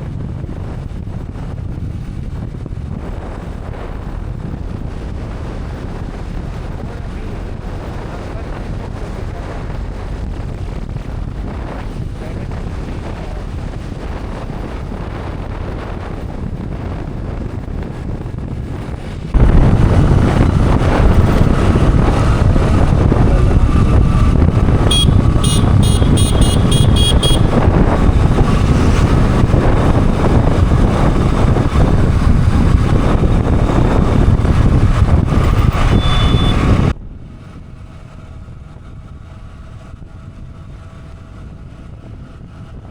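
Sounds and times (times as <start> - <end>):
motorcycle road and wind noise: 0.0 - 42.9
rapid high beeps: 24.9 - 27.4, 35.9 - 36.6.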